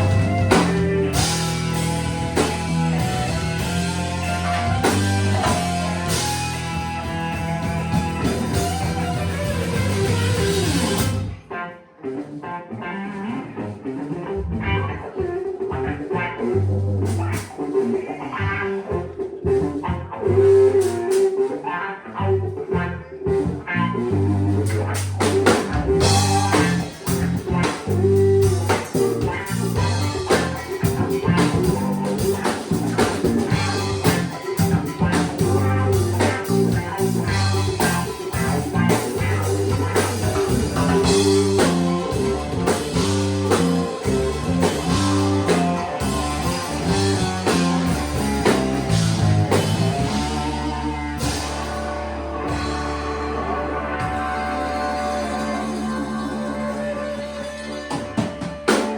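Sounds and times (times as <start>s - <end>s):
bluesy band music: 0.0s - 58.9s.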